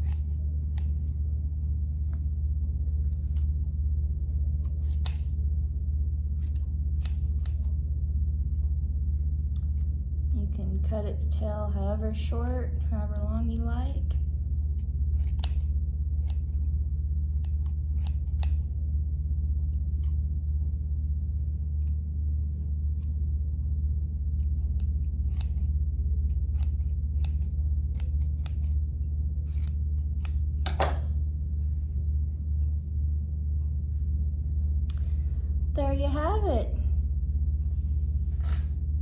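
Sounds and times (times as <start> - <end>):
scissors snipping yarn: 0.0 - 1.2, 4.2 - 5.4, 6.3 - 7.8, 13.5 - 18.7, 21.6 - 22.0, 23.9 - 31.2
low hum: 0.0 - 39.0.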